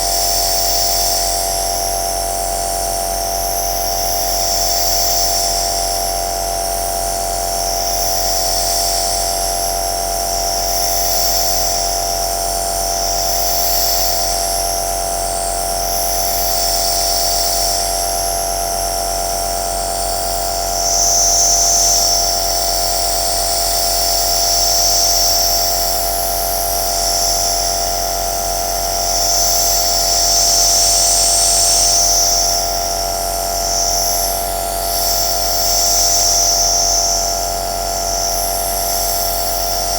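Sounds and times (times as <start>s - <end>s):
nebulizer motor hum: 10.2s - 39.9s.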